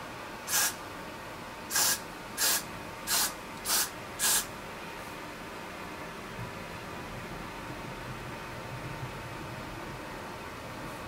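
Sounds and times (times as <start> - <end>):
hairspray can spraying bursts: 0.5 - 0.8, 1.7 - 4.5.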